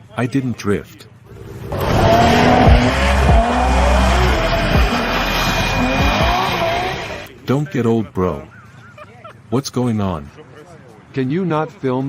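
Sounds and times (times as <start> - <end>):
car engine at high revs: 1.3 - 7.3
tyres squealing: 1.6 - 7.3.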